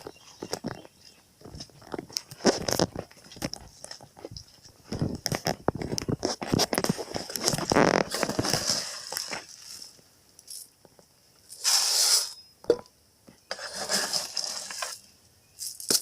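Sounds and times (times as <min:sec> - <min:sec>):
bird feeder being filled with seed: 0:13.5 - 0:15.0.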